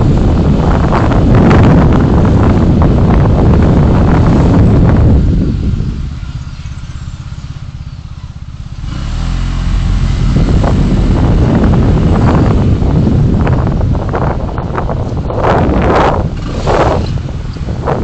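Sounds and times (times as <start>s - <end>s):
vehicle pulling away: 0.0s - 18.0s
wind and road noise: 0.0s - 18.0s
engine idling: 4.9s - 14.4s.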